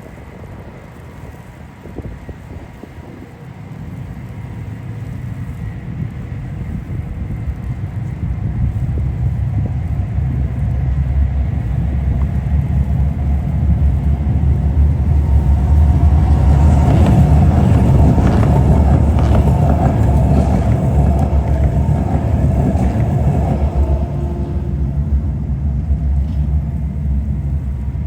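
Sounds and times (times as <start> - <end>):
road vehicle passing by: 13.4 - 26.2.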